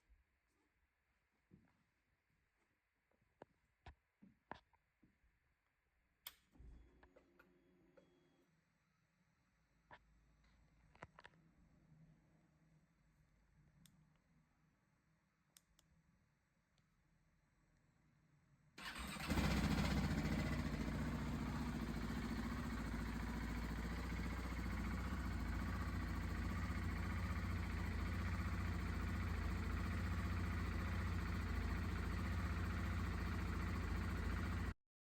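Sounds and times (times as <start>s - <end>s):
motorcycle engine idling: 18.8s - 34.8s.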